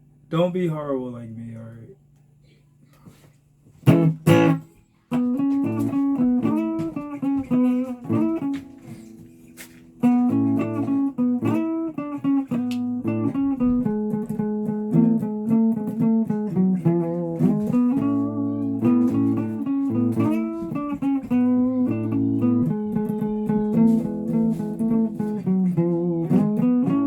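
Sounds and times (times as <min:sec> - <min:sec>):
guitar playing notes and chords: 0:03.7 - 0:27.0.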